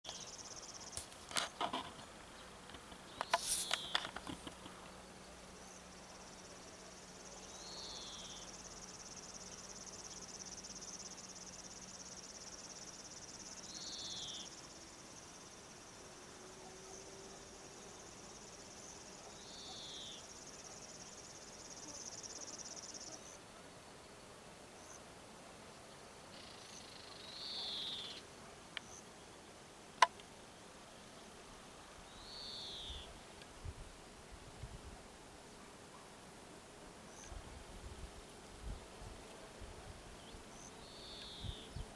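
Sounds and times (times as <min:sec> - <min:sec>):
high insect trill: 0:00.1 - 0:02.1, 0:05.6 - 0:16.1, 0:16.9 - 0:23.4.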